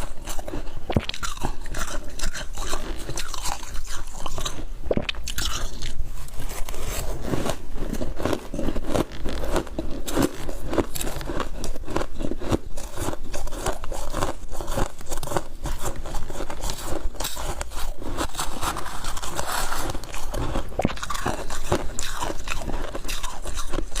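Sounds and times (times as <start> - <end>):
chewing crunchy frost: 0.0 - 24.0.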